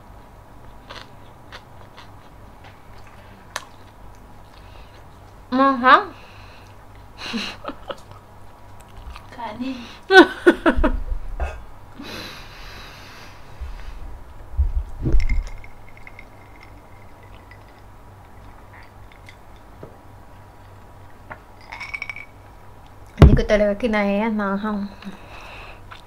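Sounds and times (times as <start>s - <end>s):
person breathing heavily: 11.4s - 14.2s
low bump: 14.5s - 15.6s.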